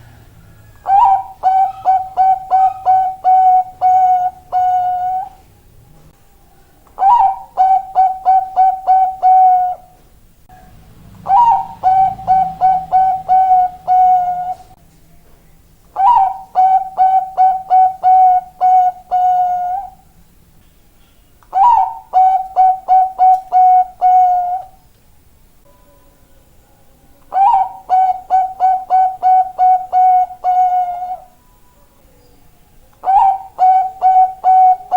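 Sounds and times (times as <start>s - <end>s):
dove cooing: 0.0s - 5.4s, 7.0s - 10.0s, 11.2s - 14.8s, 16.0s - 20.0s, 21.5s - 24.8s, 27.3s - 31.4s, 33.0s - 34.9s.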